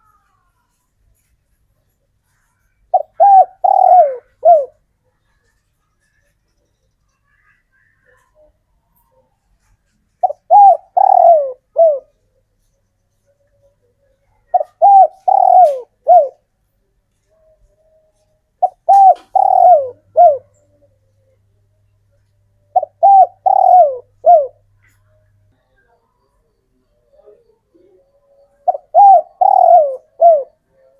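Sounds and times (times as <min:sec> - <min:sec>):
dove cooing: 0:02.9 - 0:04.9, 0:10.2 - 0:12.2, 0:13.9 - 0:16.5, 0:17.4 - 0:21.4, 0:22.6 - 0:25.0, 0:26.4 - 0:30.9.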